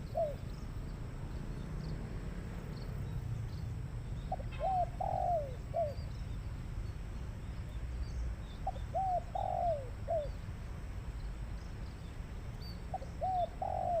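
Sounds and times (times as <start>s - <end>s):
dove cooing: 0.0s - 0.5s, 4.3s - 6.0s, 8.6s - 10.4s, 12.9s - 14.0s
small birds chirping: 0.0s - 14.0s.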